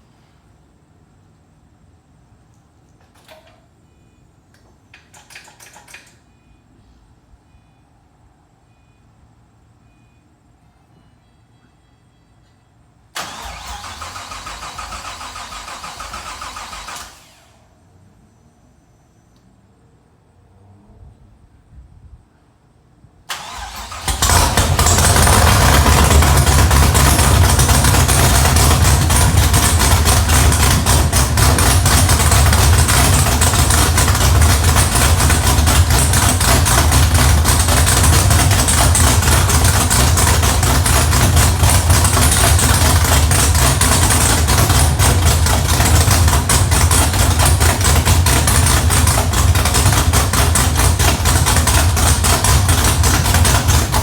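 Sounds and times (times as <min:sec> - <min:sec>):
car engine cranking and idling: 0:13.2 - 0:17.8, 0:23.3 - 0:54.0.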